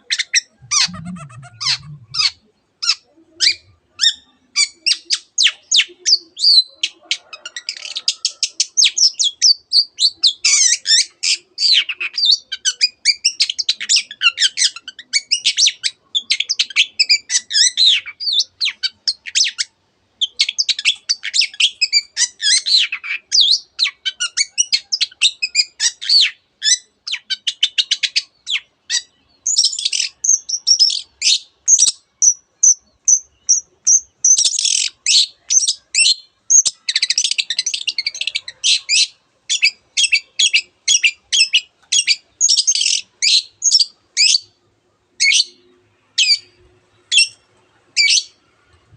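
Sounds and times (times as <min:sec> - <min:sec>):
shrike singing varied song: 0:00.0 - 0:44.6
rapid sharp bird notes: 0:00.4 - 0:02.4
high repeated bird notes: 0:00.4 - 0:02.5.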